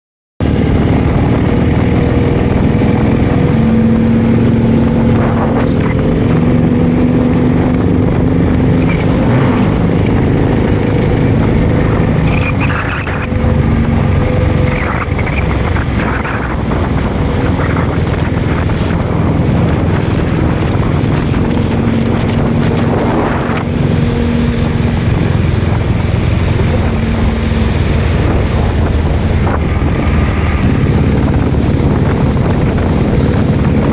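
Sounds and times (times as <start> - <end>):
motorcycle twin engine running: 0.4 - 33.9
wind buffeting microphone: 0.4 - 33.9.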